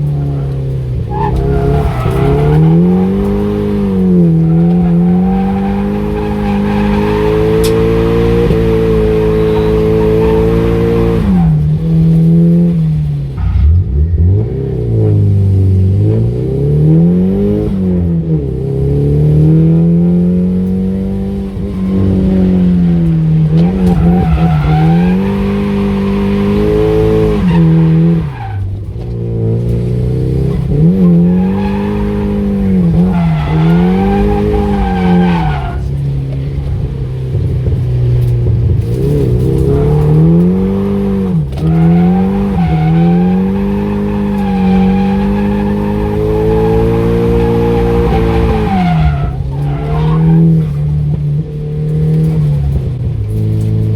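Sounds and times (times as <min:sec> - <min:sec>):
tyres squealing: 0:00.0 - 0:08.2, 0:21.4 - 0:28.7, 0:30.8 - 0:36.6, 0:39.4 - 0:51.1
car engine revving: 0:00.0 - 0:53.9.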